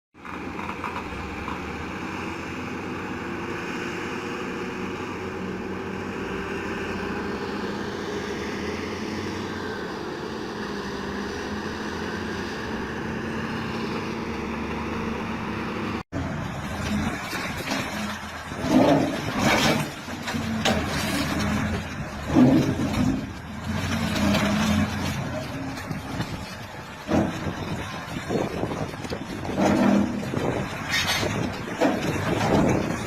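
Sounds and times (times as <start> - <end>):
diesel engine droning: 0.2 - 33.0.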